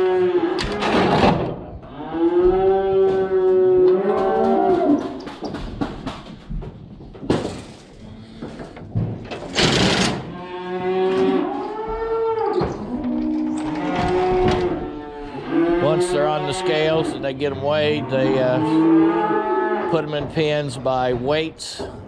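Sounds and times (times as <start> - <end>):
cattle bawling: 10.3 - 20.0.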